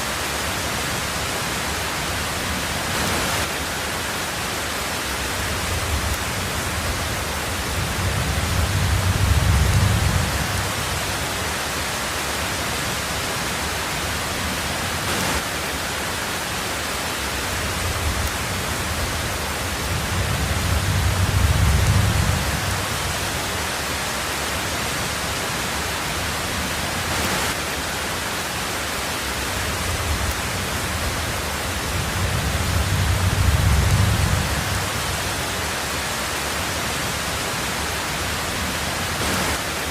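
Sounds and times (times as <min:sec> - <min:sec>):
heavy rain on a tin roof: 0:00.0 - 0:39.9
low thunder rumbles: 0:05.4 - 0:11.5, 0:17.5 - 0:23.6, 0:29.6 - 0:35.6.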